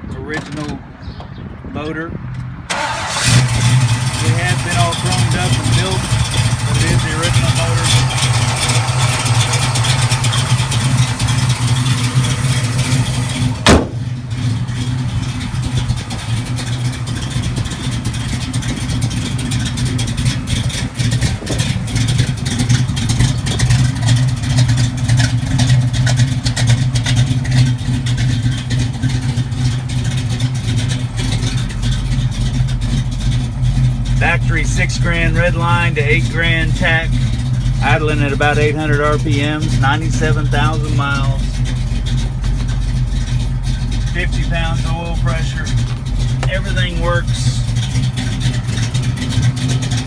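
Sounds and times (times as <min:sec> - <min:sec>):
car engine idling: 0:02.3 - 0:50.0
sharp knock: 0:13.6 - 0:14.2.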